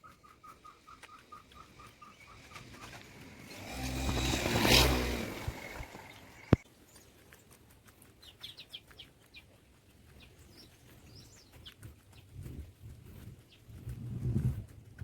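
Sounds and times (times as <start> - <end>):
high bird chirps: 0.0 - 3.6.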